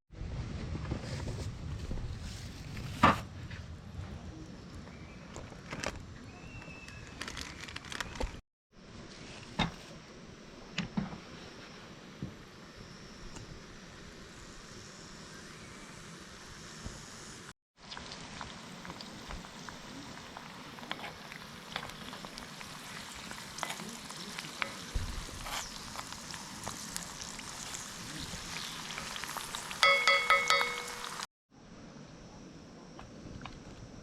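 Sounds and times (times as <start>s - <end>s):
food sizzling in a pan: 14.2s - 31.3s.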